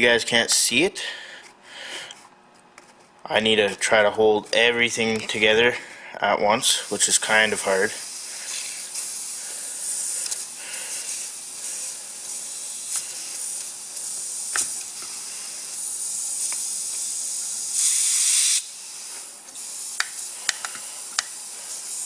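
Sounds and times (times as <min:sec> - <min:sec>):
compressed air hissing: 0:06.6 - 0:22.0.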